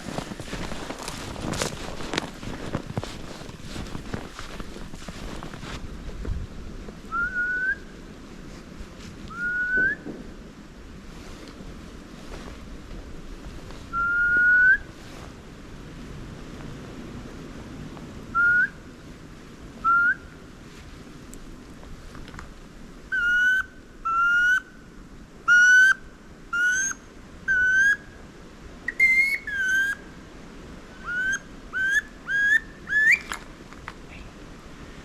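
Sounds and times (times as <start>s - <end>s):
duck whistled squeal calls: 9.4s - 10.0s, 28.9s - 30.0s, 31.0s - 33.3s.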